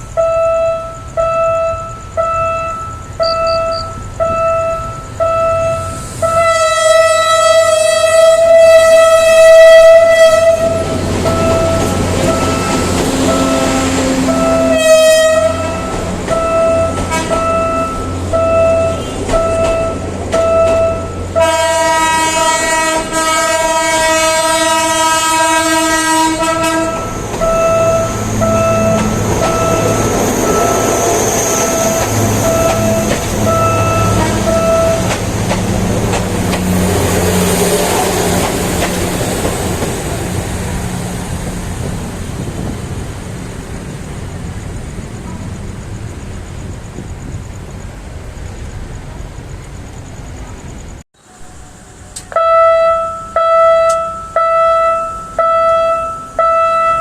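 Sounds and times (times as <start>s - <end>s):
warning signal beeping: 0.0s - 6.4s, 11.2s - 14.8s, 15.5s - 21.4s, 26.8s - 35.2s
rail noise: 0.0s - 57.0s
train horn: 0.4s - 38.5s, 52.2s - 57.0s
diesel engine hum: 26.4s - 47.7s.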